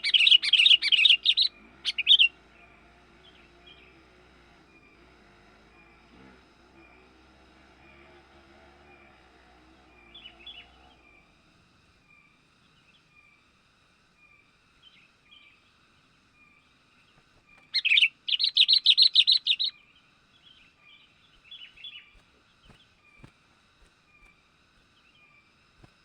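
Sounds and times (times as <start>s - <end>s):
bulbul rapid chattering call: 0.0s - 2.4s, 17.5s - 19.7s
faint repeating bird calls: 0.0s - 26.0s.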